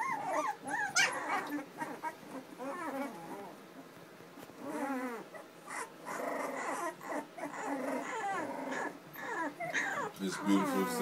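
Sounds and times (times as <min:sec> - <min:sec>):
puppies whimpering and whining: 0:00.0 - 0:11.0.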